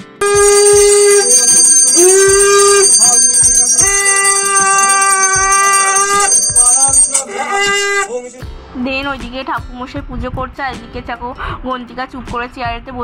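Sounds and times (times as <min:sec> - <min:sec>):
high steady ringing: 0:00.0 - 0:08.5.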